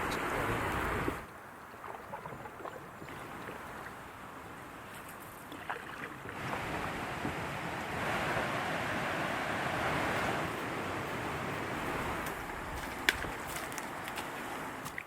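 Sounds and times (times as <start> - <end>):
wind rushing on microphone: 0.0 - 1.3, 6.3 - 14.8
water splashes and drips: 1.6 - 4.3, 4.9 - 7.9.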